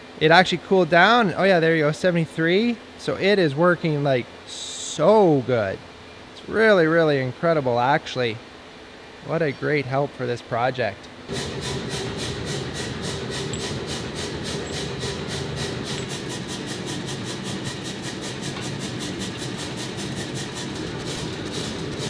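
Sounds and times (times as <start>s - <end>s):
machine steady hum: 11.1s - 22.0s
machine rapid mechanical clatter: 11.3s - 22.0s.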